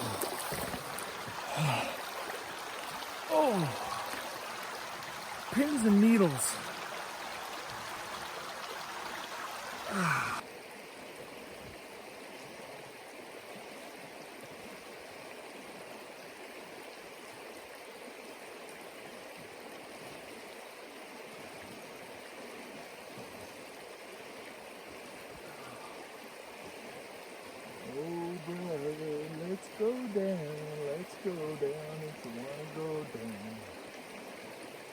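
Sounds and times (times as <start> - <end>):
mountain river rushing: 0.0 - 20.2, 20.8 - 34.9
man sighing: 1.4 - 2.2, 3.3 - 4.3, 9.9 - 10.4.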